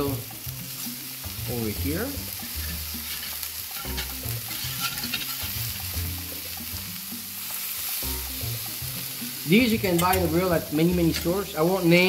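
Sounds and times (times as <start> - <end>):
meat patties sizzling: 0.0 - 12.0
metal spatula scraping: 2.4 - 6.0, 9.7 - 12.0.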